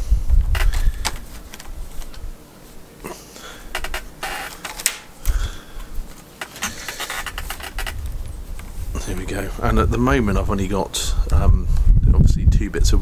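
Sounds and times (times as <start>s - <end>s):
willow rods clicking and creaking: 3.7s - 5.4s, 6.2s - 9.3s
arm brushing microphone rumble: 5.3s - 13.0s.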